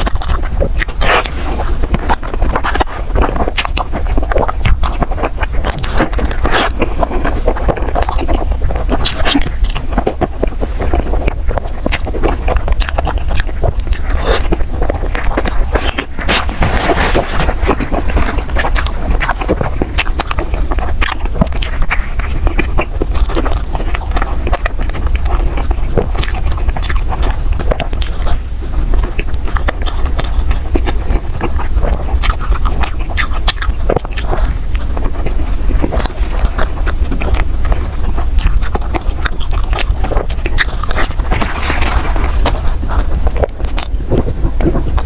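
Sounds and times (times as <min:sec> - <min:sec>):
biting and chewing: 0:00.0 - 0:45.0
steady low hum: 0:00.0 - 0:45.0.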